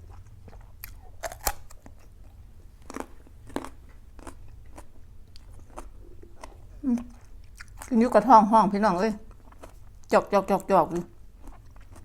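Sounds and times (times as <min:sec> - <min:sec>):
crunchy chewing: 0:00.0 - 0:08.0, 0:09.3 - 0:10.1, 0:11.4 - 0:12.0.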